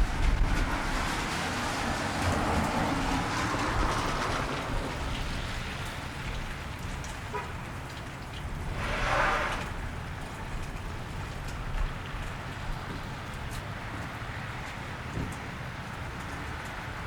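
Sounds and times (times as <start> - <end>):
car tyres hissing on wet road: 0.0 - 7.8, 8.4 - 17.0
steady rain on wet street: 0.0 - 17.0.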